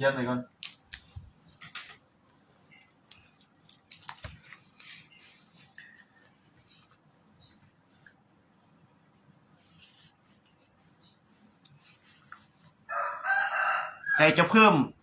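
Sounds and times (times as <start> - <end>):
paper rustling and scratching: 3.1 - 7.0.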